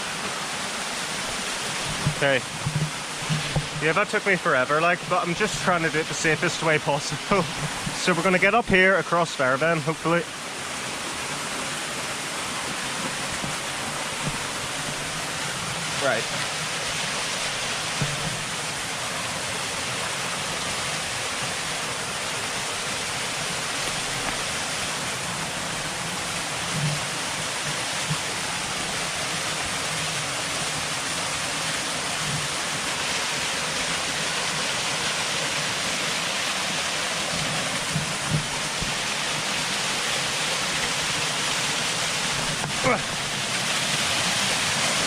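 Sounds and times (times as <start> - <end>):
waterfall rushing: 0.0 - 45.0
low thumps: 1.8 - 3.9, 37.4 - 39.0.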